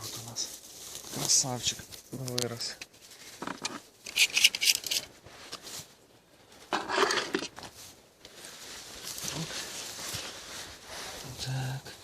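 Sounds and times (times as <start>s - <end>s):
dry leaves rustling and crackling: 0.0s - 3.4s, 7.5s - 11.8s.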